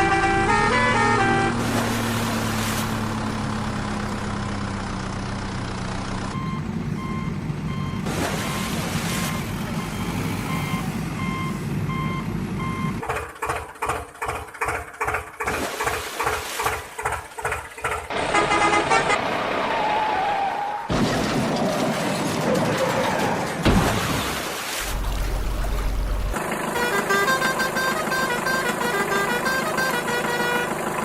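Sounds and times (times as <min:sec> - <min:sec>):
truck engine running: 0:00.0 - 0:15.6, 0:16.6 - 0:19.3, 0:24.9 - 0:31.0
reversing alarm beeping: 0:06.3 - 0:13.0.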